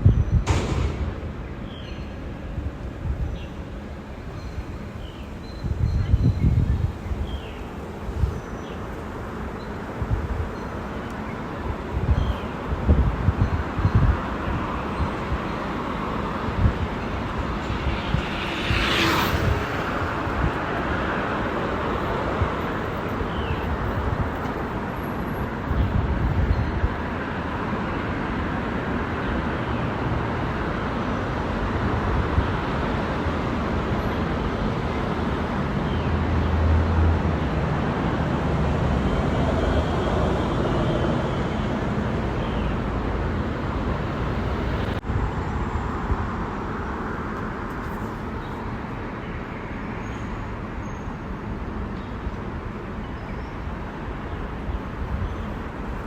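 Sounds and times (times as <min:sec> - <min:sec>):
road traffic noise: 0:00.0 - 0:56.0.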